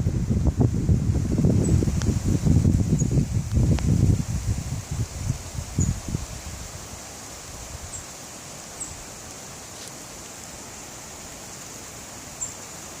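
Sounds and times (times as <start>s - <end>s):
wind buffeting on microphone: 0.0s - 8.0s
leaves rustling in wind: 0.0s - 13.0s.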